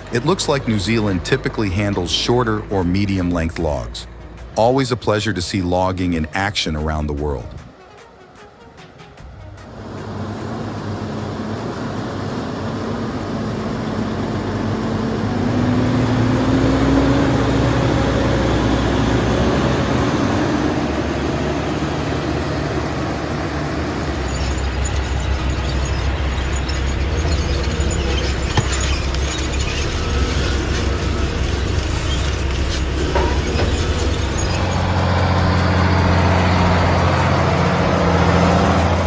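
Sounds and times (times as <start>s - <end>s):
diesel truck engine accelerating: 0.0s - 39.0s
rattles and ticks: 24.2s - 38.1s.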